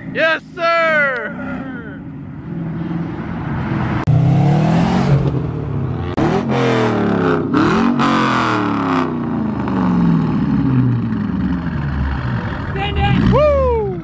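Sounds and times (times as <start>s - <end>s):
car engine revving hard: 4.0s - 10.8s.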